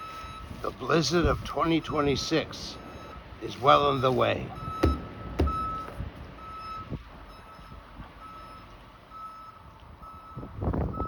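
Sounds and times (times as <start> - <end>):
reversing alarm beeping: 0.0 - 0.6, 2.7 - 3.2, 4.4 - 11.0
wind rumbling on microphone: 0.3 - 2.4, 9.6 - 11.0.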